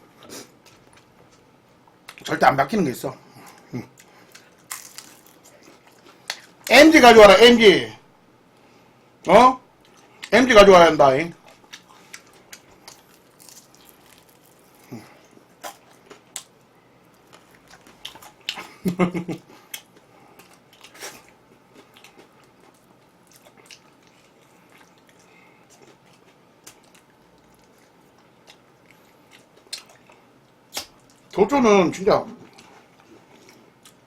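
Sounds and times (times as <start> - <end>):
food crunching: 3.4 - 6.7, 11.4 - 31.4
person chewing and biting: 3.5 - 6.7, 11.4 - 18.8, 19.6 - 31.3.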